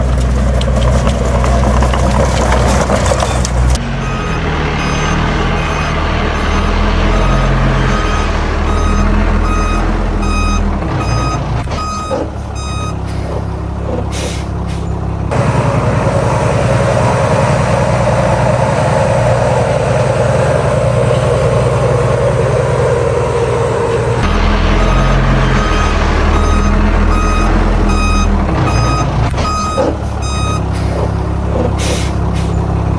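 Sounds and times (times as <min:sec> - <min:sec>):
diesel truck engine revving: 0:00.0 - 0:32.9
reversing alarm beeping: 0:03.3 - 0:13.3, 0:24.2 - 0:31.2.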